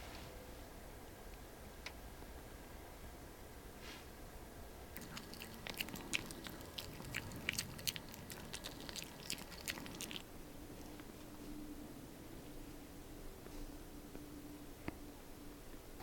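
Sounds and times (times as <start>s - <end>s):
crunchy chewing: 4.9s - 11.1s.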